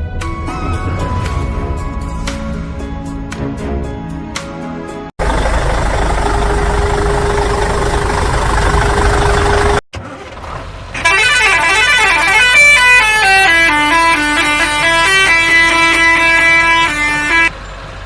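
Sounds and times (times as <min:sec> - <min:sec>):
heavy vehicle engine rumble: 0:00.0 - 0:18.0
musical vehicle horn tune: 0:11.0 - 0:17.5.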